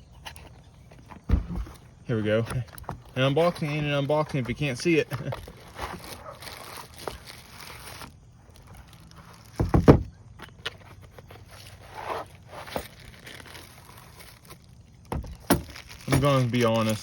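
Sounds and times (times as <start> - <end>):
loud thumps: 1.2 - 2.0
packaging rustling: 2.8 - 17.0.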